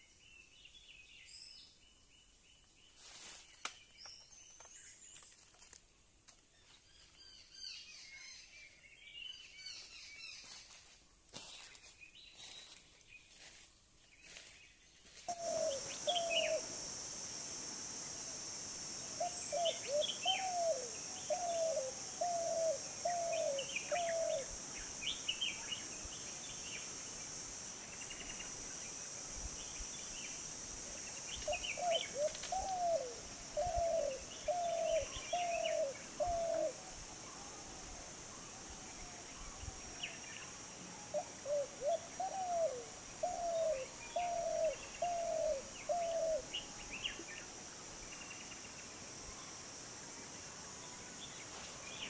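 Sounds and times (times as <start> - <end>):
high insect-like drone: 15.3 - 52.0.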